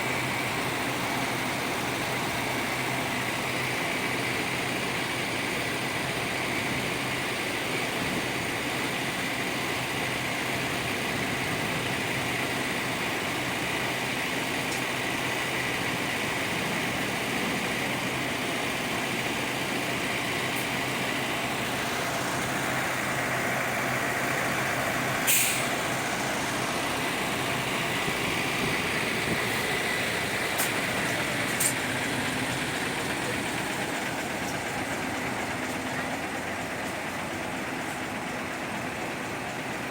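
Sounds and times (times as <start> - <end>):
diesel bus idling: 0.0 - 39.9
air brake hiss: 25.2 - 25.8.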